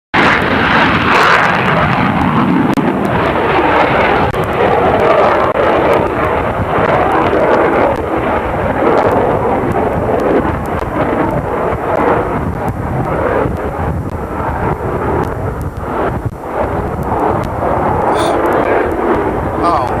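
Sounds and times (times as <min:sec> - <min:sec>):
jet aircraft engine roar: 0:00.2 - 0:12.4.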